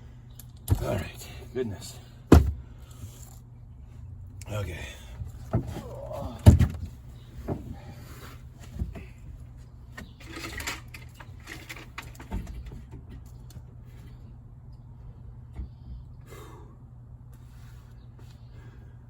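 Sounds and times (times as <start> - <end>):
knocks and clunks on car panels: 2.3 - 2.6, 5.5 - 7.8.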